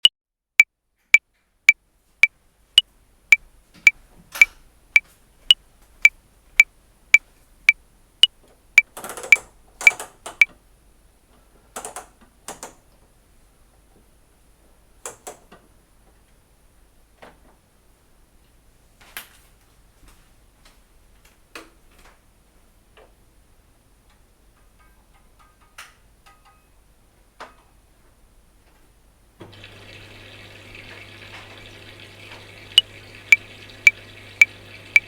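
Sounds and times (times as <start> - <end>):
metronome clicking: 32.8 - 35.0.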